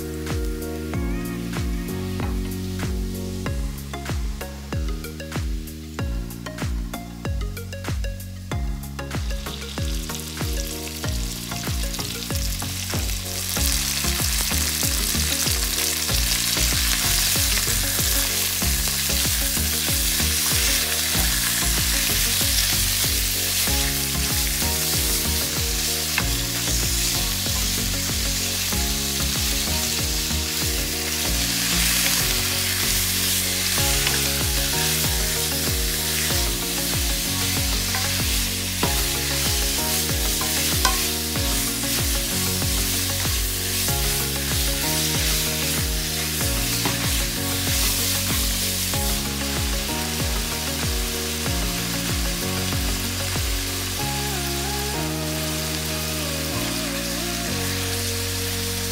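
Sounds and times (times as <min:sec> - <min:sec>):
background music: 0:00.0 - 0:58.9
meat sizzling in hot oil: 0:09.3 - 0:58.9.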